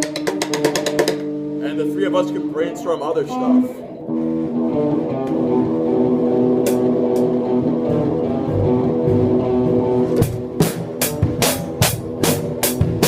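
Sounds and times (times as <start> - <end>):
drum hits: 0.0 - 1.4, 8.5 - 13.0
bass guitar: 0.0 - 13.0
guitar chords: 0.0 - 13.0.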